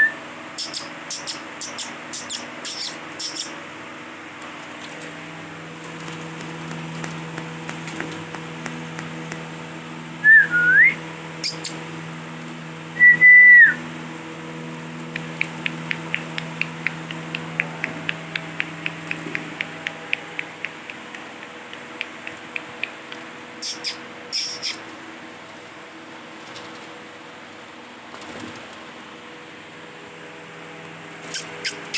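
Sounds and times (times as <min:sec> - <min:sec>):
faint steady hum: 0:00.0 - 0:31.9
parrot whistling: 0:10.2 - 0:11.8, 0:13.0 - 0:13.8, 0:23.6 - 0:24.8
fast sharp ticks: 0:15.1 - 0:24.8.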